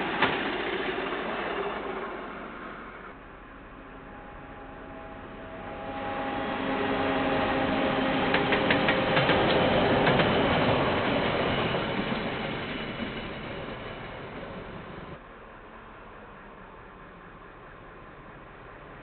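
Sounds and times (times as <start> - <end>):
freight train rumble: 0.0 - 19.0
wagon wheels clicking on rails: 8.2 - 12.2.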